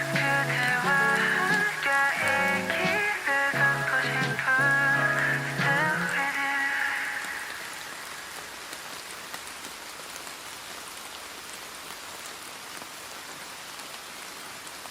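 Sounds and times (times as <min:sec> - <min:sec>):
song: 0:00.0 - 0:07.5
steady rain falling: 0:00.0 - 0:14.9.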